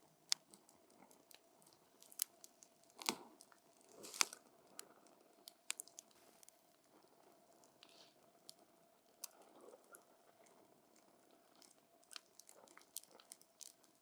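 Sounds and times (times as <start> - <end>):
soft hiss of burning wood: 0.3 - 10.8.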